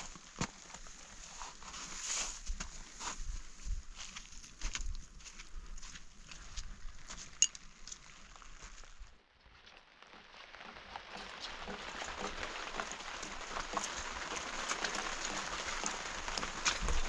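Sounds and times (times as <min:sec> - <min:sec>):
rain pattering: 0:09.8 - 0:17.0.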